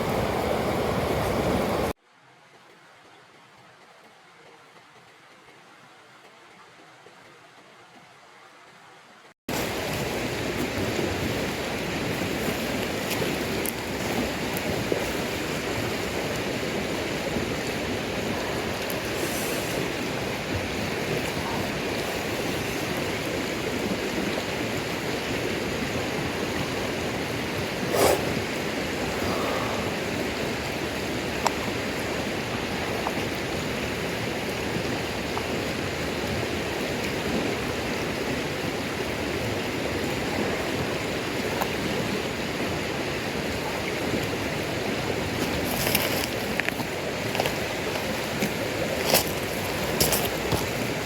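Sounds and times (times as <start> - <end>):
steady rushing noise: 27.4 - 32.9.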